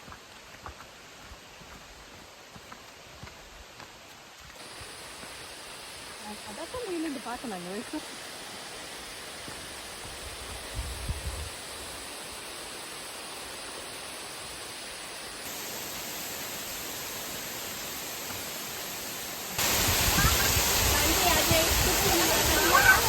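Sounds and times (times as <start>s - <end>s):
waterfall rushing: 11.5s - 23.0s.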